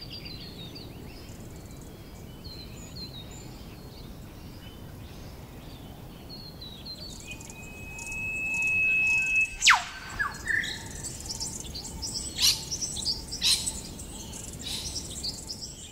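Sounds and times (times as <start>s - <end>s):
small high bird chirps: 6.4s - 15.9s
faint bird calls: 6.8s - 15.6s
long whistling bird call: 6.9s - 11.8s
bird call sweeping down: 7.2s - 11.2s.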